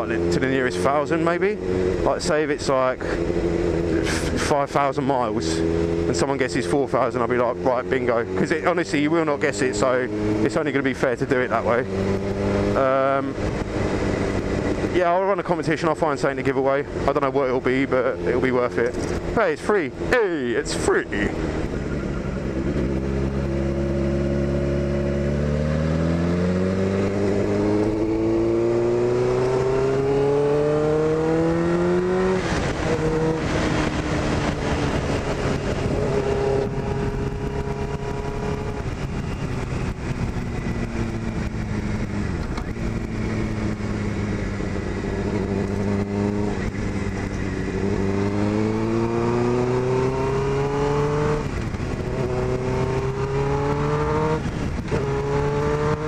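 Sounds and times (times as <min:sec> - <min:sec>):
gear change: 0:00.0 - 0:56.0
motorcycle engine revving: 0:00.0 - 0:56.0
wind rush: 0:25.8 - 0:56.0.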